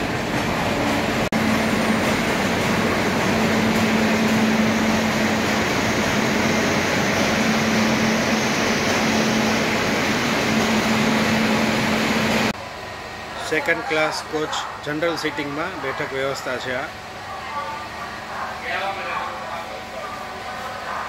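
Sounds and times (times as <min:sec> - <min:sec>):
train noise: 0:00.0 - 0:12.6.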